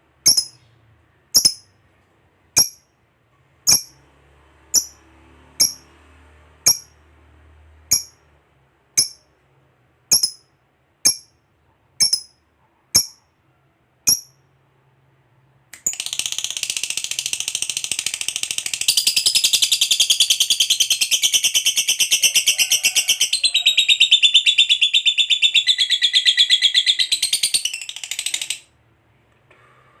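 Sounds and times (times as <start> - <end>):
lovebird chirping: 0.2 - 1.7, 3.7 - 4.0, 4.7 - 5.0, 5.6 - 5.8, 7.9 - 8.2, 9.0 - 9.3, 10.1 - 10.4, 12.0 - 12.4, 13.0 - 13.2, 14.1 - 14.4, 23.3 - 28.6
lovebird rapid chattering trill: 0.3 - 0.6, 1.4 - 1.6, 3.7 - 3.9, 12.0 - 12.3.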